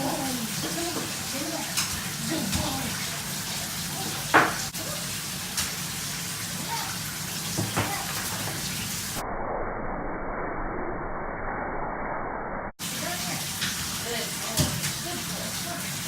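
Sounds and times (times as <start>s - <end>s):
water running with a hiss: 0.0s - 9.2s, 12.8s - 16.0s.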